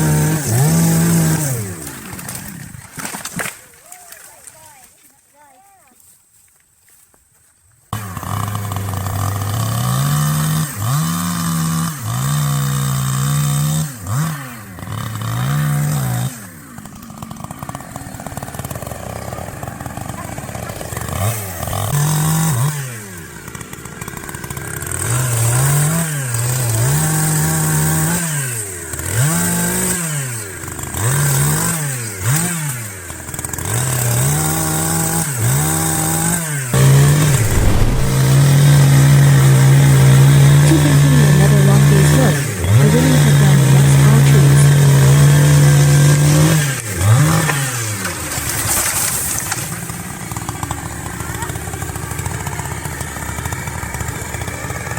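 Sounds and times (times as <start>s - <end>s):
chainsaw cutting wood: 0.0s - 3.6s, 8.0s - 54.9s.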